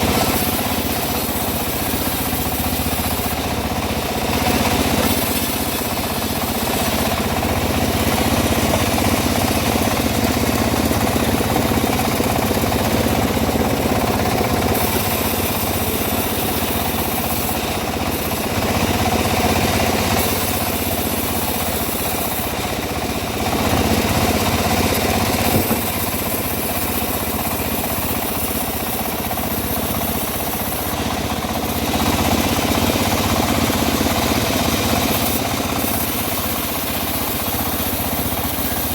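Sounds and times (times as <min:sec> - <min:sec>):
blade sawing wood: 0:00.0 - 0:38.9
sawmill engine running: 0:00.0 - 0:38.9.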